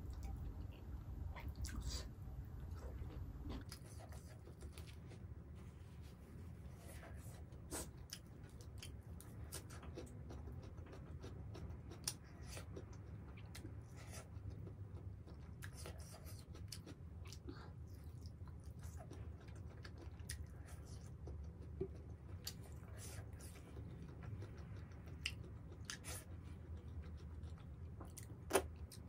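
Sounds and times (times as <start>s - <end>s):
low hum: 0.0s - 7.6s
person chewing food: 1.4s - 5.4s, 6.6s - 29.0s.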